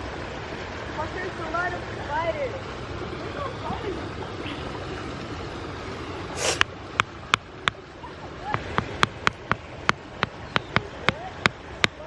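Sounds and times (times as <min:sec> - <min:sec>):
water rushing: 0:00.0 - 0:12.0
sharp irregular ticks: 0:08.6 - 0:12.0.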